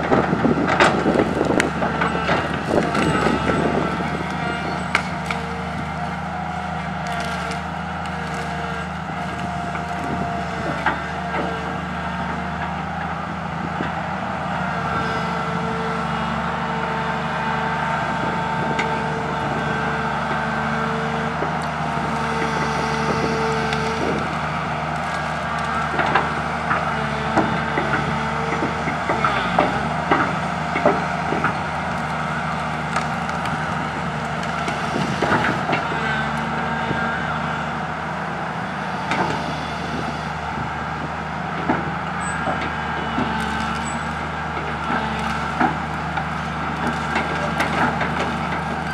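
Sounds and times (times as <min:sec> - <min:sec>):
excavator diesel engine running: 0:00.0 - 0:48.9
branches snapping: 0:06.4 - 0:11.0, 0:29.1 - 0:35.6.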